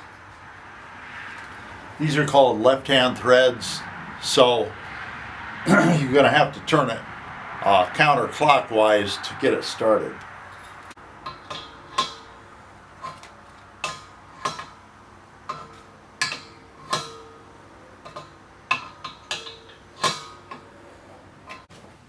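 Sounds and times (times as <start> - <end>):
metal fittings clinking: 10.6 - 12.4, 15.5 - 20.7.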